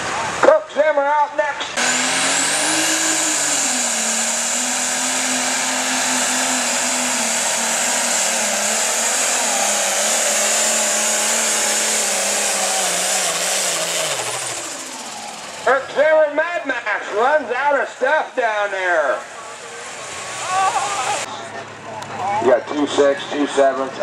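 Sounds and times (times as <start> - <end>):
tractor diesel engine at high revs: 1.7 - 24.0.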